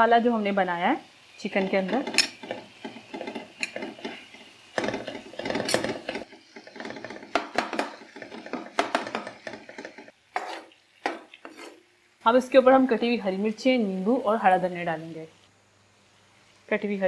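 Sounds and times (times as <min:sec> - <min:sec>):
spoon scraping and knocking a pan: 0:01.5 - 0:11.8.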